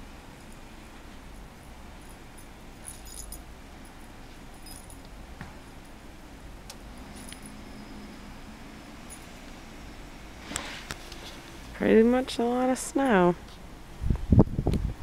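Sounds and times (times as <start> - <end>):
low steady rumble: 0.0 - 15.0
light metallic jingling: 1.4 - 5.1, 6.9 - 8.2, 12.9 - 13.4.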